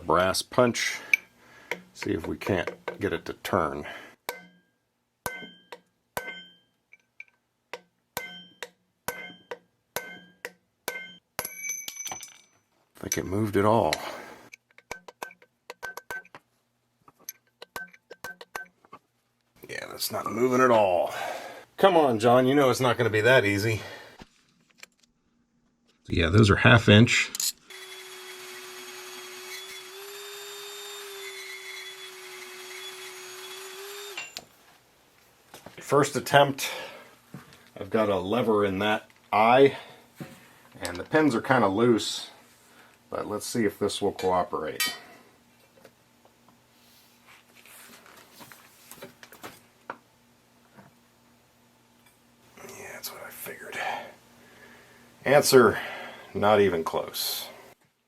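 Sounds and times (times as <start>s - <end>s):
hammer striking metal punch: 4.3s - 4.7s, 5.3s - 6.7s, 7.7s - 12.3s
power tool motor running: 27.7s - 34.4s.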